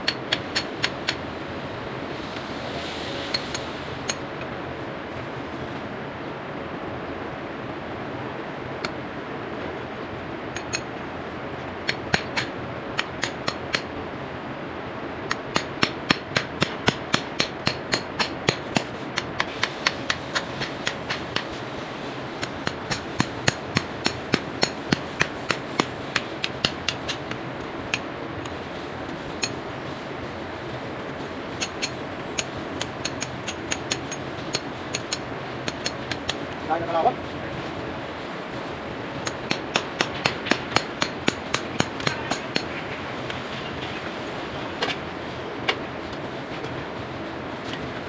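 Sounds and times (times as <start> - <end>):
hammer striking a chisel: 0.0 - 1.2, 10.6 - 10.9, 11.8 - 13.9, 15.3 - 21.5, 22.4 - 27.3, 31.6 - 36.4, 39.2 - 42.8.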